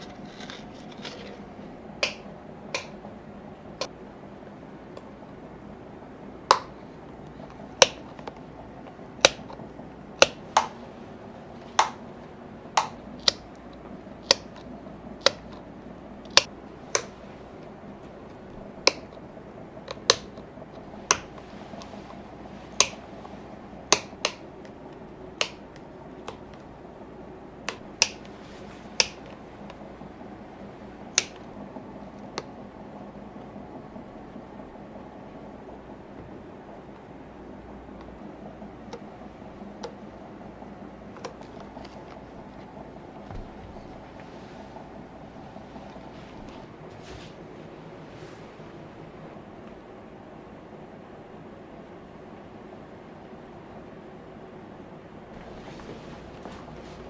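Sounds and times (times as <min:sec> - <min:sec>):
faint background hum: 0:00.0 - 0:57.0
sharp dry clicks: 0:12.8 - 0:15.6.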